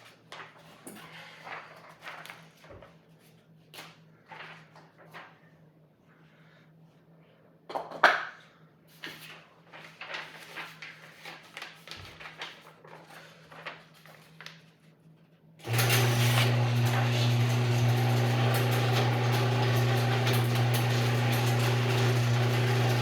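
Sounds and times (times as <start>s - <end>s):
appliance motor humming: 15.6s - 23.0s.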